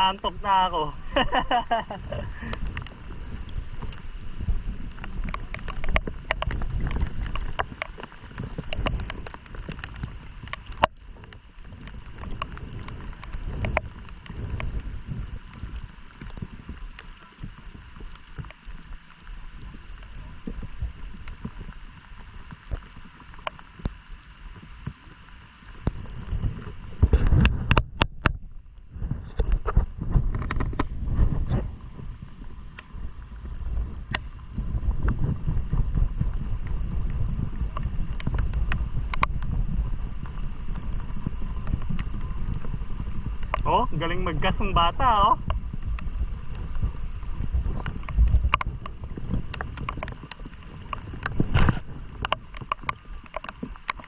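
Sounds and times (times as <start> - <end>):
wind buffeting microphone: 0.0 - 16.8, 25.8 - 54.0
sharp clicks and knocks: 4.9 - 14.8, 37.6 - 39.6, 47.7 - 54.0.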